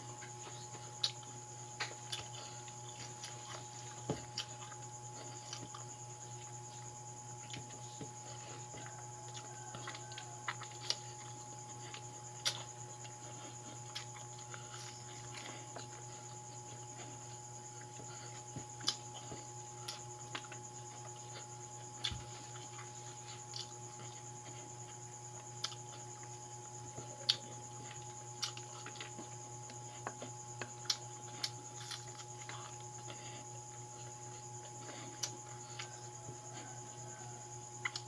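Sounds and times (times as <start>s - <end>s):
person chewing with mouth clicks: 0.2s - 6.6s, 7.4s - 17.2s, 17.8s - 24.2s, 25.6s - 26.3s, 27.2s - 33.2s, 33.9s - 36.6s.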